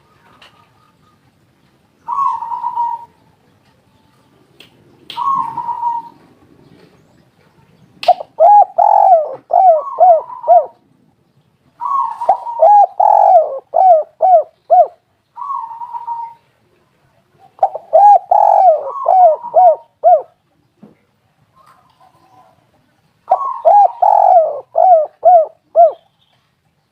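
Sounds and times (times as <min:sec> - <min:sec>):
dove cooing: 0:02.0 - 0:03.2, 0:05.2 - 0:06.4, 0:08.1 - 0:10.8, 0:11.8 - 0:16.5, 0:17.4 - 0:20.4, 0:23.3 - 0:26.1.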